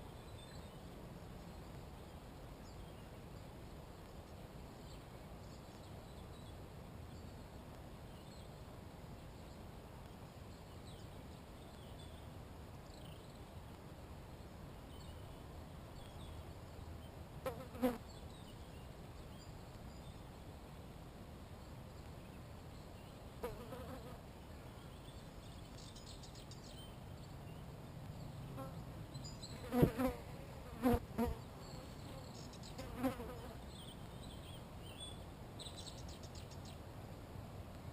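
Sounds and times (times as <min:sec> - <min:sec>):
insect buzzing past: 0:29.6 - 0:33.6.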